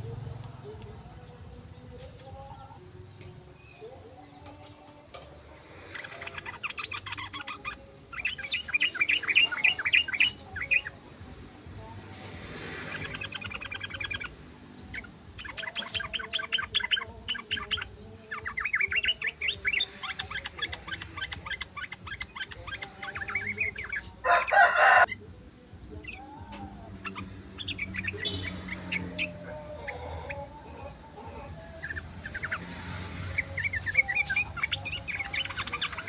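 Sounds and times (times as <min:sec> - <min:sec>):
bulbul chattering song: 0:00.0 - 0:36.0
loud harsh bird call: 0:18.6 - 0:25.1.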